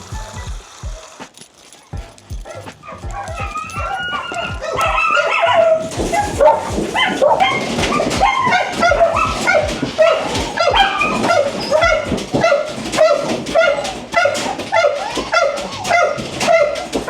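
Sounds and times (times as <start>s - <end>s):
dogs barking: 0.0s - 17.0s.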